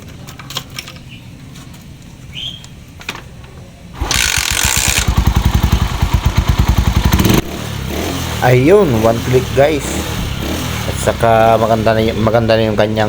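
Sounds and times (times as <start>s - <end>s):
motorcycle engine kick-started: 4.0s - 7.8s.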